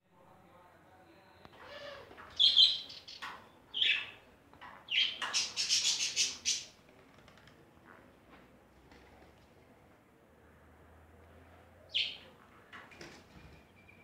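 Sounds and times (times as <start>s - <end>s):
birds chirping and squawking: 1.5s - 6.8s, 11.9s - 12.3s.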